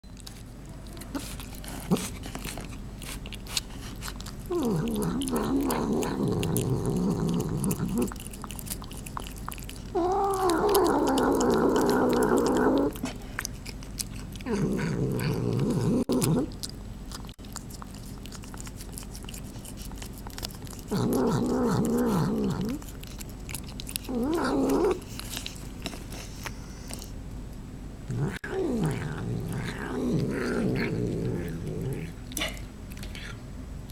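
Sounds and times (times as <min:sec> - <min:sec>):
cat chewing clicks: 0:00.2 - 0:14.6, 0:16.1 - 0:27.1.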